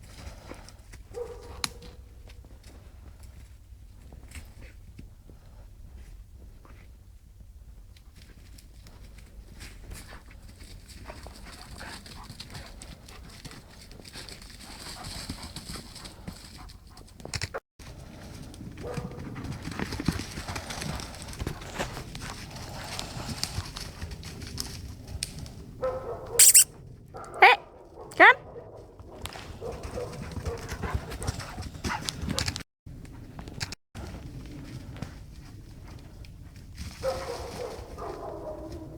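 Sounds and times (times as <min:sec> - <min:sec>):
dog yelps: 0:26.1 - 0:26.7, 0:27.4 - 0:28.4
paws rustling through leaves: 0:34.0 - 0:38.9.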